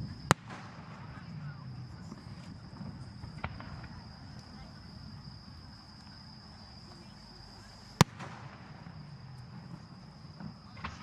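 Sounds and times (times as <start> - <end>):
firework bang: 0.0 - 4.3, 7.9 - 11.0
high-pitched insect trill: 0.0 - 11.0.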